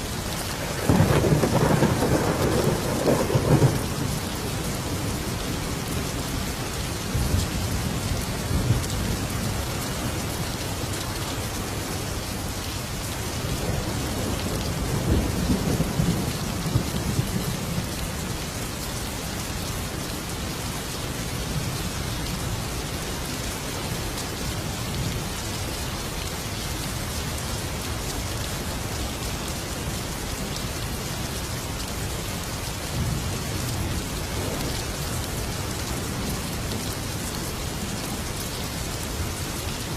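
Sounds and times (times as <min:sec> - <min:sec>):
steady rain: 0:00.0 - 0:39.9
thunder rolling: 0:00.5 - 0:04.0.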